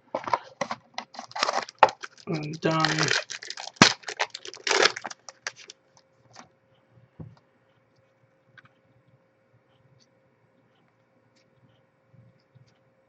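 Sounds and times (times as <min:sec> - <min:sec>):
cards and wrapper crackling: 0:00.2 - 0:05.7.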